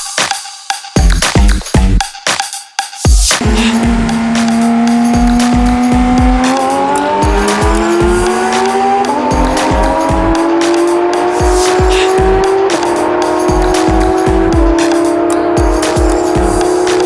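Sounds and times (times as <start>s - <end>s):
electronic dance music: 0.0s - 17.0s
sports car engine accelerating: 3.4s - 17.0s.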